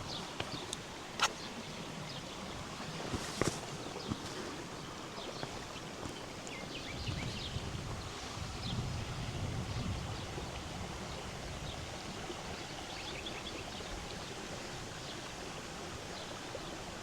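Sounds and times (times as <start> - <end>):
small birds chirping: 0.0 - 8.8
steady outdoor hiss: 0.0 - 17.0
footsteps on path: 0.2 - 1.4, 2.9 - 6.3.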